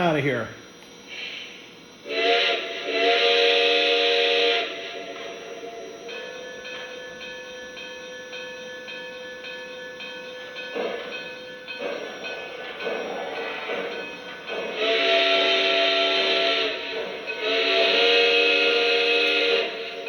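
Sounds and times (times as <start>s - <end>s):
steady locomotive tone: 0.0s - 20.0s
steam hiss: 1.1s - 6.3s, 10.7s - 20.0s
multi-tone steam whistle: 1.1s - 7.0s, 11.8s - 20.0s.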